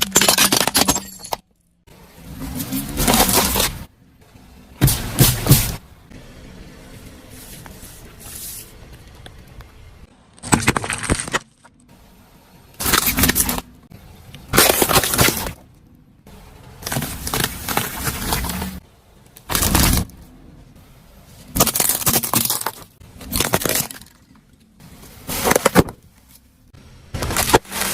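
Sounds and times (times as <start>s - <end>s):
brittle objects cracking and breaking: 10.4s - 11.8s, 21.6s - 24.3s.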